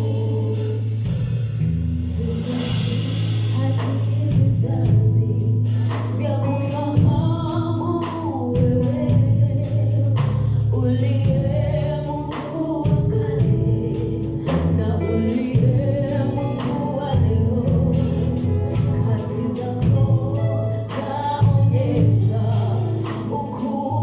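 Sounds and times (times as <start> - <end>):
drum and cymbal hits: 0.0 - 11.6
low bass notes: 0.0 - 24.0
person singing melody: 2.2 - 24.0.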